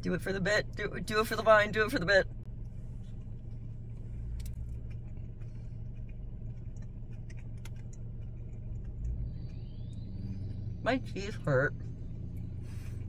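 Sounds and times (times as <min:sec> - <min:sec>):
car engine idling: 0:00.0 - 0:13.0
chewing clicks: 0:02.6 - 0:10.8.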